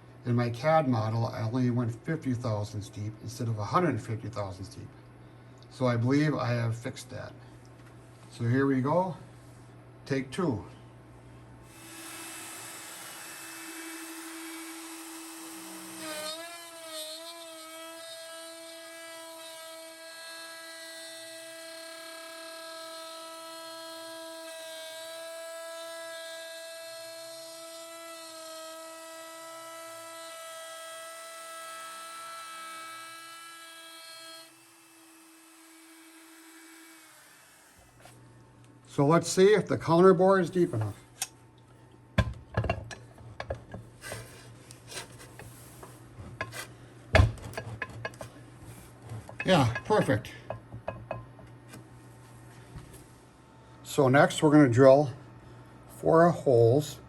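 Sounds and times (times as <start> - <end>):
router spindle whining: 11.7 - 19.8, 31.0 - 38.1.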